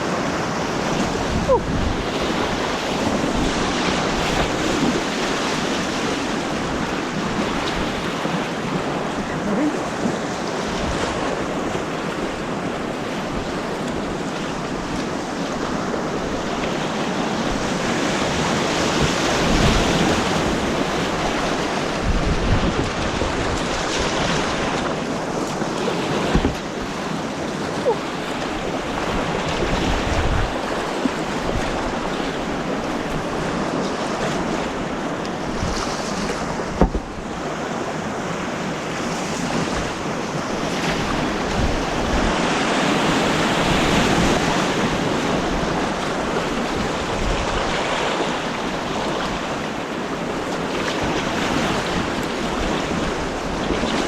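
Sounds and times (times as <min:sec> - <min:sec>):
white water rushing: 0:00.0 - 0:54.0
wind buffeting microphone: 0:00.0 - 0:54.0.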